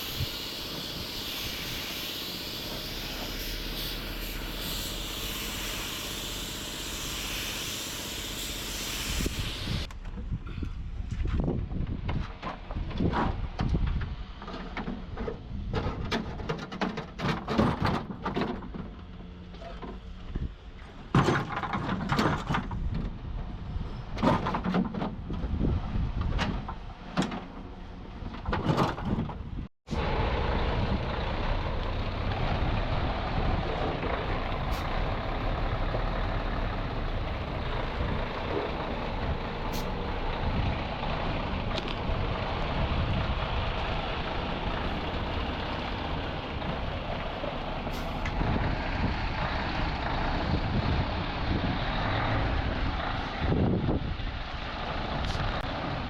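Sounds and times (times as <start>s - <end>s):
truck engine running: 29.9s - 56.0s.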